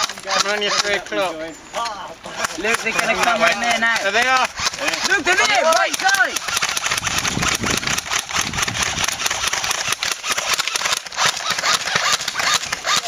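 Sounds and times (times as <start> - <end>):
airsoft guns firing rapidly: 0.0 - 1.3, 2.3 - 13.0.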